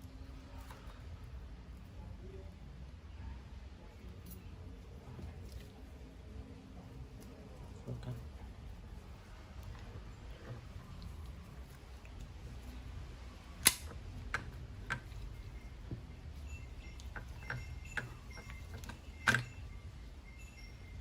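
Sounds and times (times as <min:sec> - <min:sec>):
low steady hum: 0:00.0 - 0:21.0
clicks and knocks of small parts: 0:13.6 - 0:15.3, 0:17.1 - 0:19.6.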